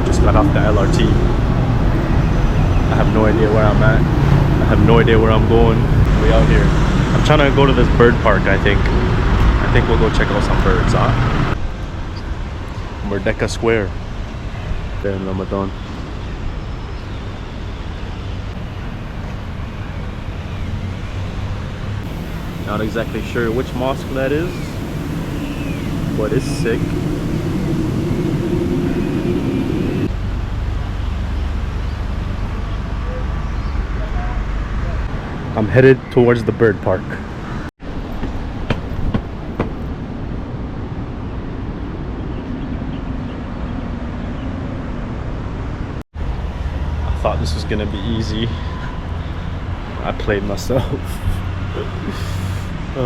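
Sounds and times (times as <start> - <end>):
wind on microphone: 0.0 - 11.6, 22.0 - 30.6
faint engine hum: 0.0 - 13.4, 18.6 - 35.1, 46.2 - 53.0
city street noise: 0.0 - 53.0.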